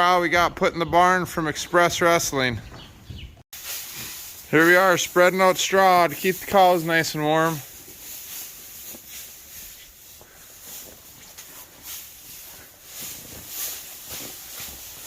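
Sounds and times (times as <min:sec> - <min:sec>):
straw rustling and swishing: 0:03.5 - 0:15.0.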